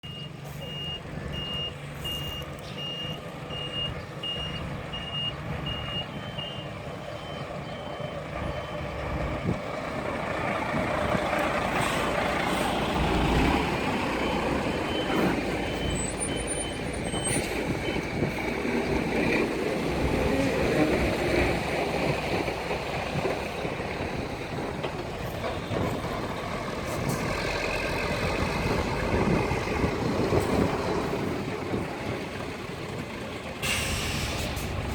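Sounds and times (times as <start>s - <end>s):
reversing alarm beeping: 0.0s - 9.6s, 14.1s - 18.2s
diesel engine running: 0.0s - 34.9s.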